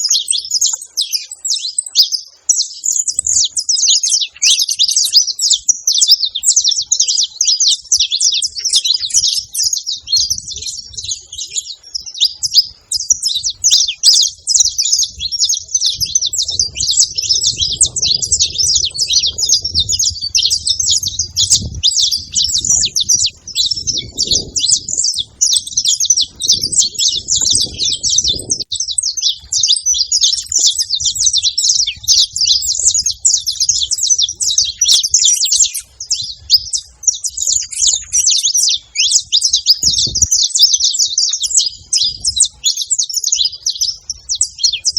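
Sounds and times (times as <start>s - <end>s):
finches chirping and trilling: 0.0s - 44.9s.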